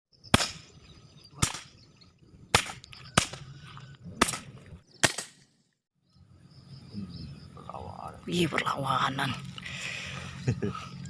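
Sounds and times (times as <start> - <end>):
air rifle shots: 0.3 - 0.8, 1.4 - 1.8, 2.5 - 3.5, 4.2 - 5.5.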